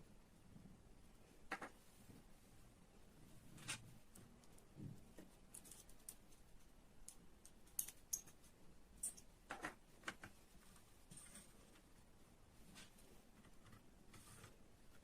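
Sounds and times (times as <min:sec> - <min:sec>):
small hard objects clicking: 0:07.0 - 0:08.4.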